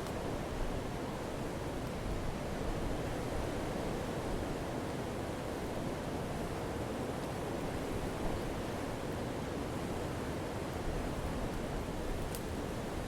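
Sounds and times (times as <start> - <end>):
fire crackles and pops: 12.2 - 12.5.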